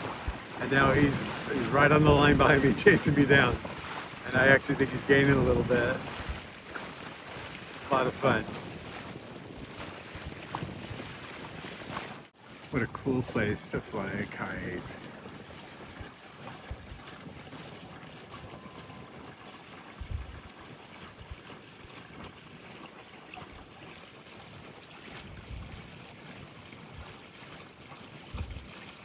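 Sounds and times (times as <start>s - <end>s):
wind buffeting microphone: 0.0s - 12.2s, 13.4s - 20.5s, 25.2s - 25.9s
wind and water hissing: 0.0s - 29.0s.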